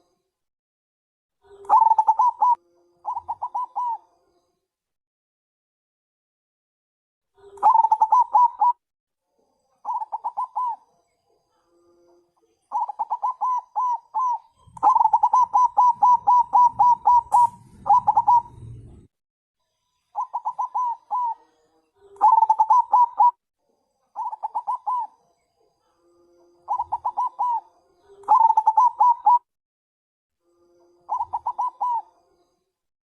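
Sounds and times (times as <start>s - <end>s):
dove cooing: 1.6s - 4.0s, 7.4s - 8.8s, 9.8s - 10.8s, 12.7s - 19.1s, 20.2s - 21.4s, 22.1s - 23.4s, 24.2s - 25.2s, 26.7s - 29.5s, 31.1s - 32.1s
low rumble: 16.7s - 19.1s.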